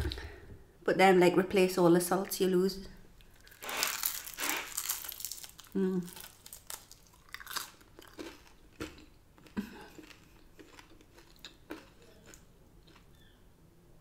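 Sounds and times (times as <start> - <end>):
crunchy chewing: 3.2 - 13.4.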